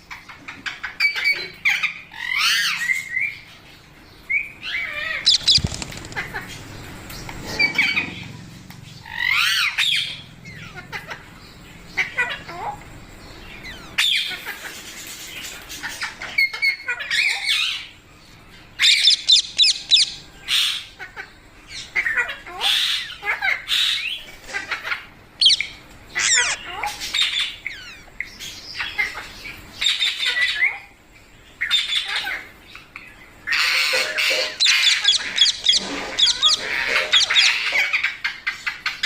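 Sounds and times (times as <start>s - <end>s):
parrot squawking: 4.6s - 6.6s, 18.8s - 28.2s, 33.5s - 39.0s.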